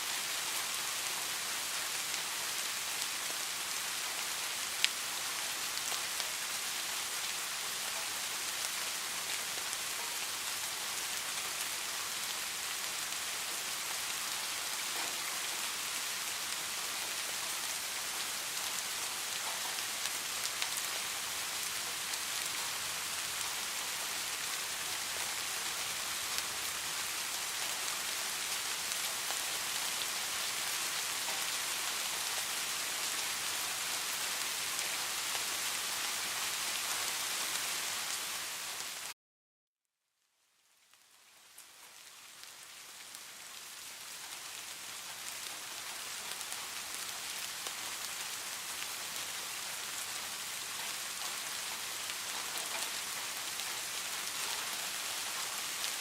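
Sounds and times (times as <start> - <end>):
rain hissing: 0.0 - 39.2.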